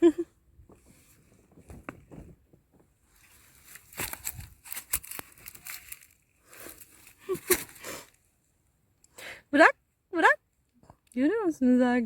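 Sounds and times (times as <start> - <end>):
leaves rustling and crackling: 3.0 - 8.2.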